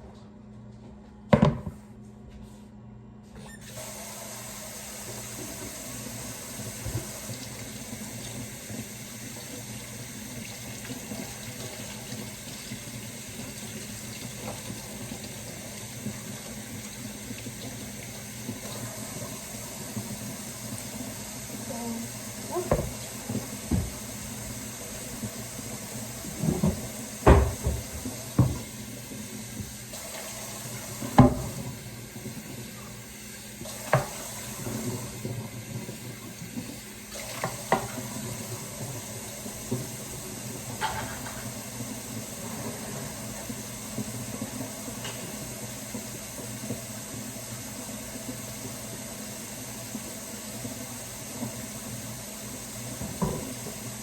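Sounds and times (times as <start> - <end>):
tap running into a sink: 6.5 - 21.1, 22.5 - 28.8, 29.5 - 32.9, 33.6 - 36.0, 36.6 - 38.8, 52.9 - 53.8.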